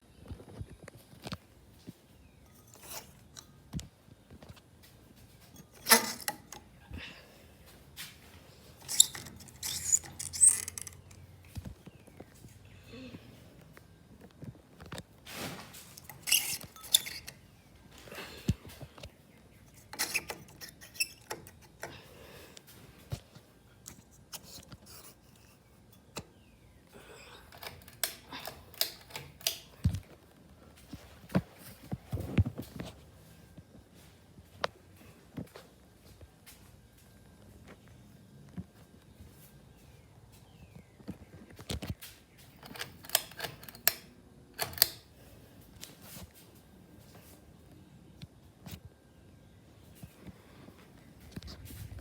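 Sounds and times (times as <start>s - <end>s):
ceiling fan mechanism clicks: 5.2s - 6.8s, 8.8s - 11.9s, 15.8s - 17.4s, 18.4s - 26.3s, 27.5s - 30.2s, 41.5s - 46.0s
short high squeaks: 8.8s - 11.2s, 16.0s - 17.4s, 19.7s - 21.6s.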